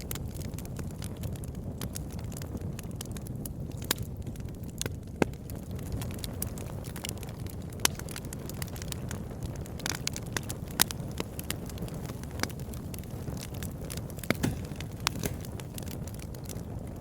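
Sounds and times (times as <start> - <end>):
burning wood crackling and popping: 0.0 - 17.0
campfire rumble: 0.0 - 17.0.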